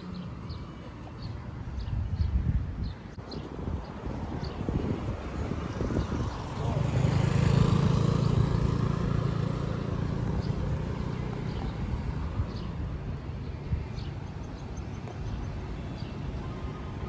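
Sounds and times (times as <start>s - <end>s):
city street noise: 0.0s - 17.0s
vehicle passing by: 4.5s - 14.1s.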